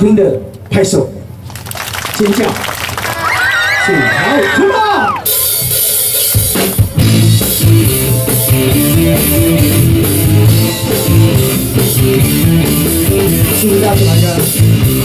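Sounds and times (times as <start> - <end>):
drums: 4.1 - 15.0
bass guitar: 5.2 - 15.0
electric guitar: 5.2 - 15.0.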